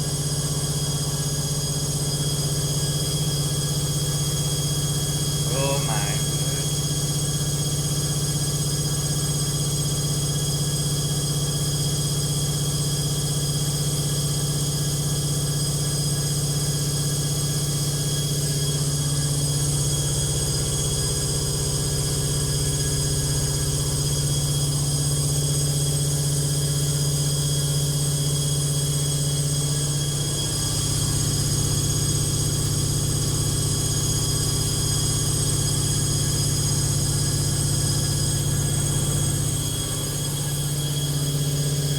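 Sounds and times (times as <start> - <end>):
washing machine spinning: 30.3 - 41.9.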